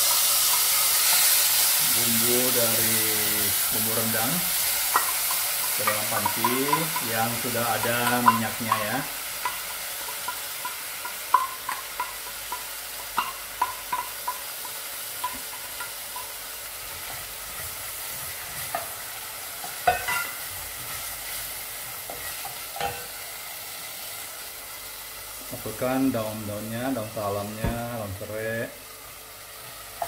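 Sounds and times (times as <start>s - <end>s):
spice paste sizzling in oil: 0.0s - 30.0s
wooden spatula clinking on bowl: 4.9s - 7.2s.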